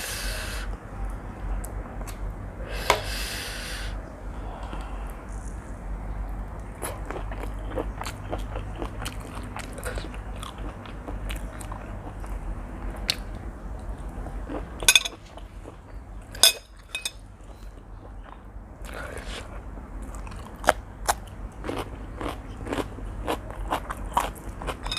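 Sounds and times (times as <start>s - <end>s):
chewing noodles: 6.8s - 16.4s, 17.4s - 24.9s.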